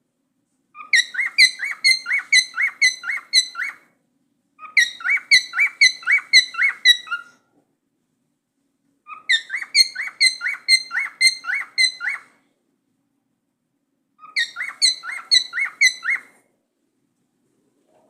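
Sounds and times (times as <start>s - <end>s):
cockatiel chirping: 0.8s - 3.9s, 4.6s - 7.4s, 9.1s - 12.4s, 14.2s - 16.4s.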